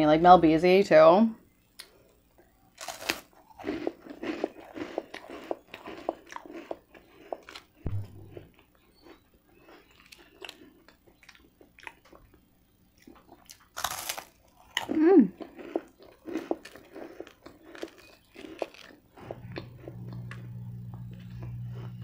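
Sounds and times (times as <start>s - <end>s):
crunchy bite into toast: 2.8s - 12.1s, 13.0s - 22.0s
wet mouth clicks and chewing: 3.6s - 12.4s, 14.6s - 20.5s
person humming: 14.9s - 15.3s.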